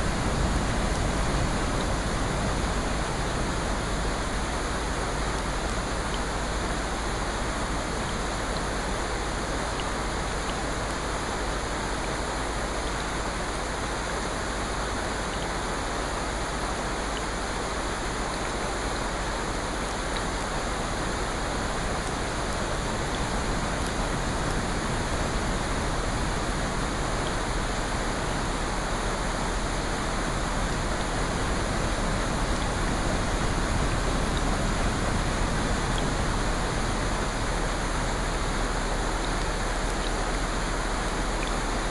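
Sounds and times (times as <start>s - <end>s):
rushing water: 0.0s - 41.9s.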